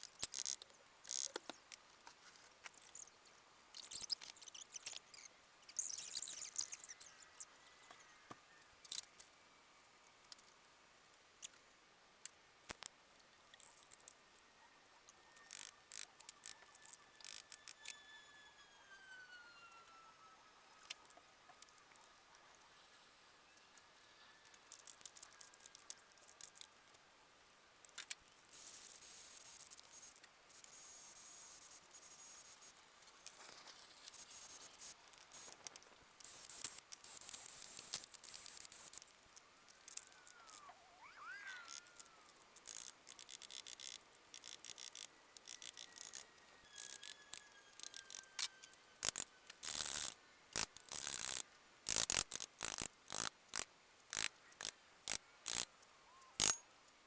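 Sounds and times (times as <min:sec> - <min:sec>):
sped-up clicks and chirps: 0:02.6 - 0:09.2, 0:39.7 - 0:56.6.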